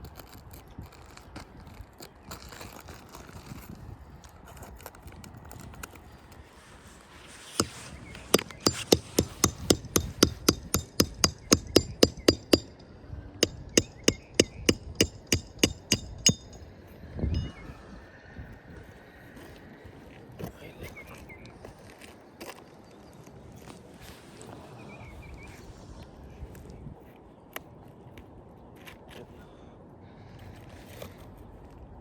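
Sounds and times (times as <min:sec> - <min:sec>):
hammer striking nails: 0:07.6 - 0:16.7.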